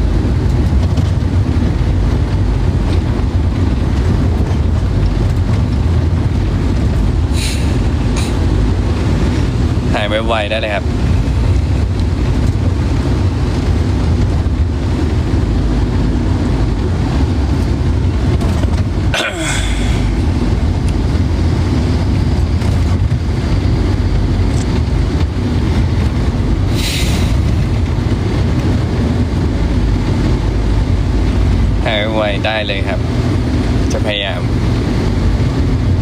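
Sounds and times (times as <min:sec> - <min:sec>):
road and engine rumble in car: 0:00.0 - 0:36.0
short hiss: 0:07.4 - 0:08.4.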